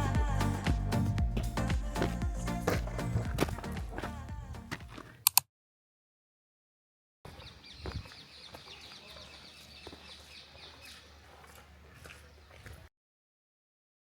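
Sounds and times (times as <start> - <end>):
background music: 0.0 - 5.0
dull low thump: 0.1 - 4.5
birds chirping and calling: 7.3 - 12.7.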